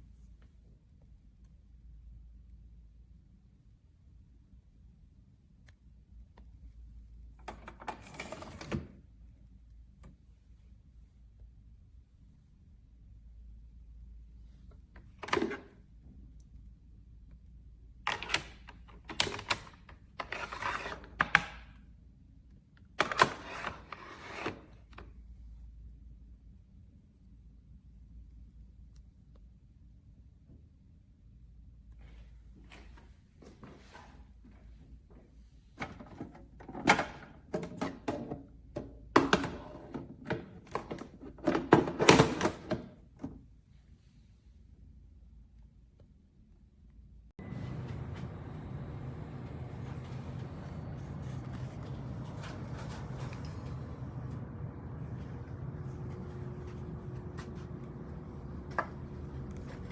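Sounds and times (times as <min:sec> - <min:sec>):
faint low hum: 0:43.1 - 0:59.9.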